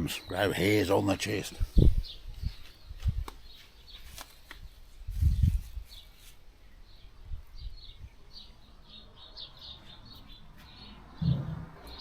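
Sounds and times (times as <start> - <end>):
small birds chirping: 0.0 - 12.0
dull thump: 11.2 - 11.8
low rumble: 11.2 - 12.0.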